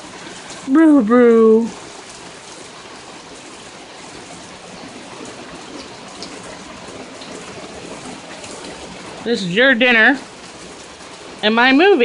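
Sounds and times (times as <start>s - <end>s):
heavy rain on a barn: 0.0s - 12.0s
faint drip ticks: 4.2s - 9.3s.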